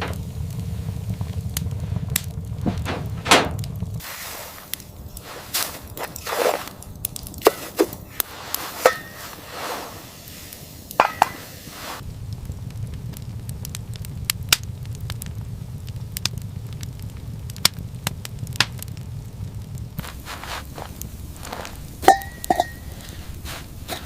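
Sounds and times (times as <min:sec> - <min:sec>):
low rumble: 0:00.0 - 0:07.4, 0:09.4 - 0:23.9
sharp knocks and thuds: 0:02.6 - 0:03.9.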